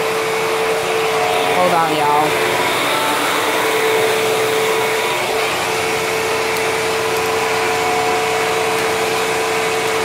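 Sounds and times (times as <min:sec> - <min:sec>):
vacuum cleaner motor whining: 0:00.0 - 0:10.0
rushing air: 0:00.6 - 0:06.5.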